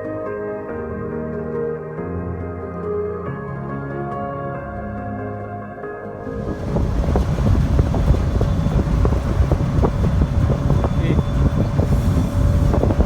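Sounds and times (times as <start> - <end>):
ferry engine rumble: 6.2 - 13.0
wind buffeting microphone: 6.2 - 13.0.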